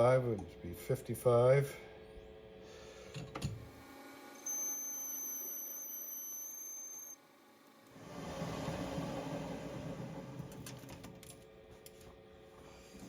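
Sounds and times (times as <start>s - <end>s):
lathe whine: 3.7s - 11.0s.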